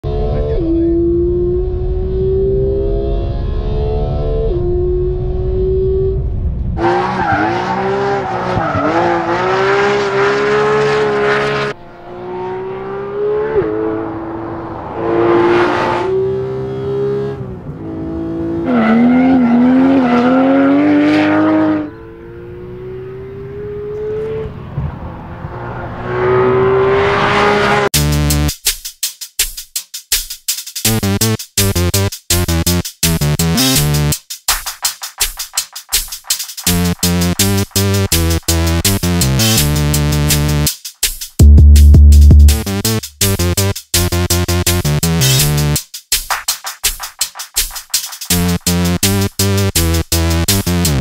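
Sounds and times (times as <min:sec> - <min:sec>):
car engine at high revs: 0:00.0 - 0:27.9
electronic music with drum beat: 0:28.0 - 0:51.0.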